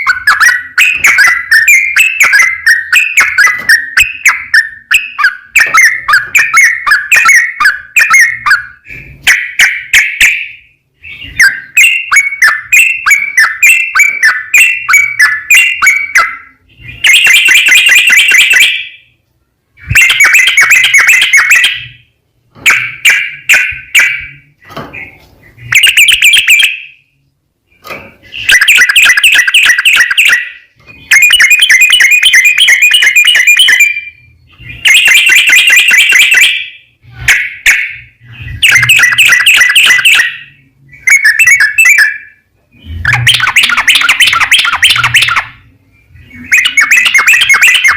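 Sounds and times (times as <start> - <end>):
bulbul chattering trills: 42.8 - 47.9.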